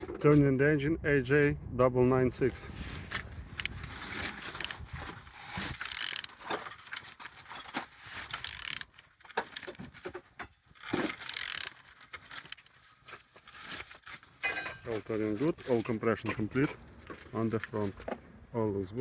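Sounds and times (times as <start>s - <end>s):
metal clinks and scrapes: 3.0s - 17.9s
wrench ratchet clicks: 5.4s - 6.3s, 8.4s - 8.9s, 11.2s - 11.8s.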